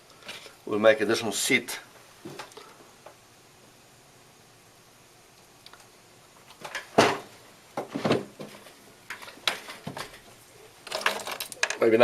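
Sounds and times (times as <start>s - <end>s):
tools knocking and clattering on bench: 10.9s - 11.8s.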